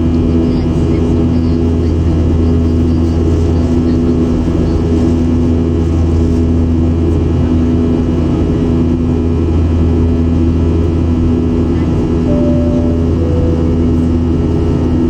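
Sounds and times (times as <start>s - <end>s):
constant tone: 12.3s - 14.8s
airplane cabin drone: 12.3s - 15.0s.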